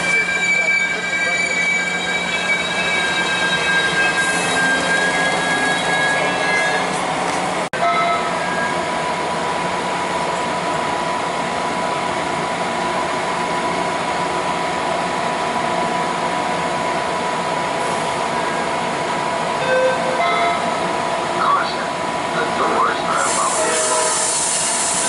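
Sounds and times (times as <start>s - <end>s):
steady high tone: 0.0s - 7.0s
train wheels rushing on rails: 8.3s - 25.0s.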